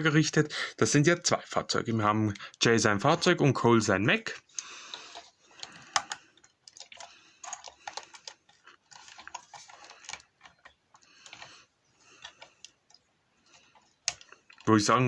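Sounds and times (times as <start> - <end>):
plastic bricks clicking: 4.9 - 14.7.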